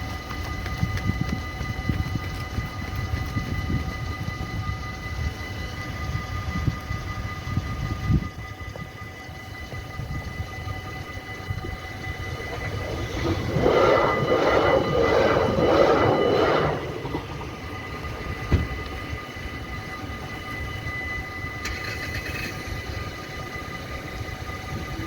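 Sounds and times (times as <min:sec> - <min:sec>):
train passing rumble: 0:11.1 - 0:20.8.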